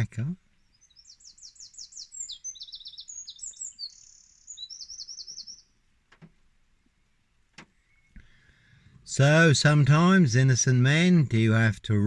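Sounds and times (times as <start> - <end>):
songbird chirping and trilling: 0.0 - 9.8
faint click: 6.1 - 6.5.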